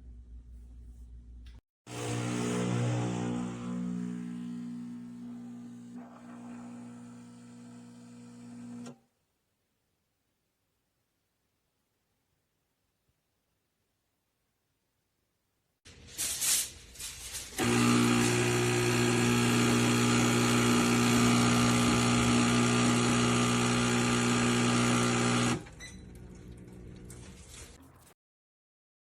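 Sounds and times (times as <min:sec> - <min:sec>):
espresso machine pump humming: 0:01.9 - 0:08.9, 0:17.6 - 0:27.2.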